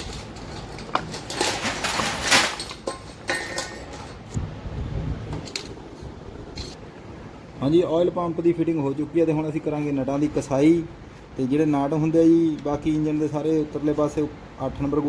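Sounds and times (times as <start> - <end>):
metal tools clinking: 0.0 - 4.3.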